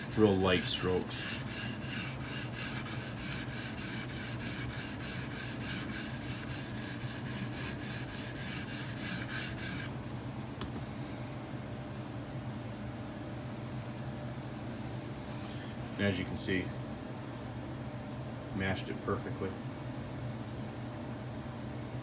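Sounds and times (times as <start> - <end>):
sharpening stone scraping knife: 0.0 - 9.9.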